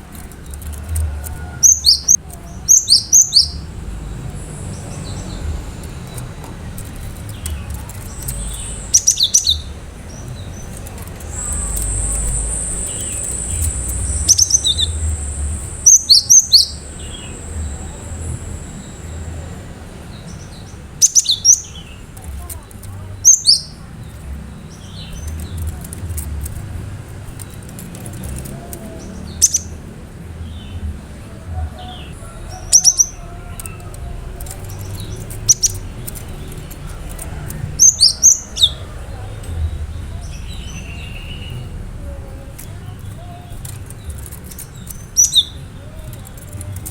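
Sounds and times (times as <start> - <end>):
faint clicks: 0.0 - 18.6, 22.2 - 30.2, 32.2 - 46.9
bird chirping: 0.0 - 46.9
thin high steady tone: 1.3 - 21.5.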